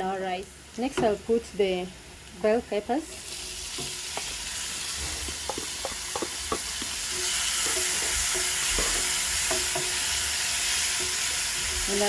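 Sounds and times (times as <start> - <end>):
onions sizzling in hot oil: 0.0 - 12.0
spoon tapping against pan: 5.3 - 7.0, 7.6 - 10.0.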